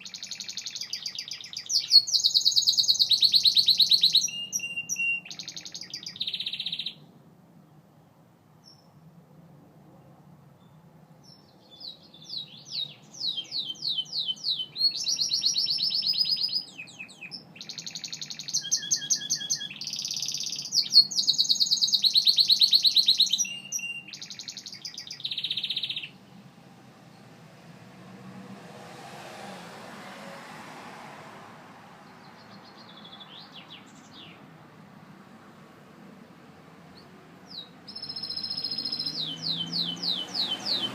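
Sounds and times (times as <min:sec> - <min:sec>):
canary singing trills: 0:00.0 - 0:07.1, 0:10.6 - 0:26.4, 0:32.0 - 0:34.5, 0:36.9 - 0:40.9.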